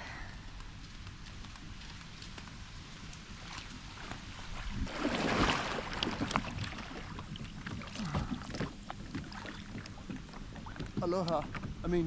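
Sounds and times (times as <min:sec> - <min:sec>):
water splashing: 0:03.3 - 0:11.6
water sloshing: 0:03.4 - 0:11.8
small knocks and drips: 0:06.0 - 0:12.0.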